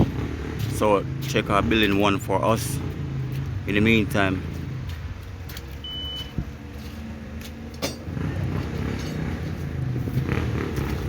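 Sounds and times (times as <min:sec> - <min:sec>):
engines rumbling: 0:00.0 - 0:11.0
short high beep: 0:05.8 - 0:06.4.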